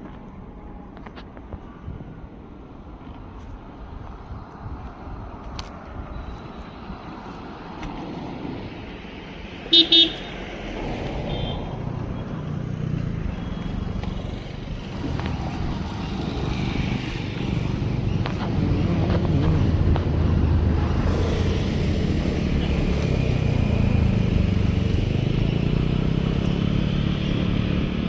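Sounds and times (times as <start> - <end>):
vehicle engine approaching: 6.2 - 28.0
vehicle horn honks: 9.7 - 10.4, 11.2 - 11.8.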